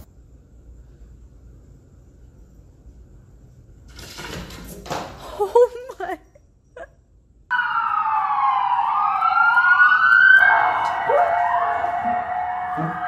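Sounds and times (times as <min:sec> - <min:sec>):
emergency vehicle sirens wailing: 0:07.5 - 0:13.0.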